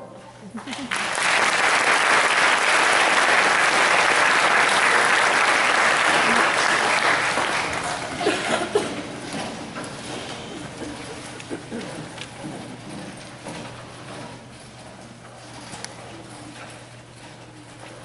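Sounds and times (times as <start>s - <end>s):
audience applauding: 0.6s - 9.2s.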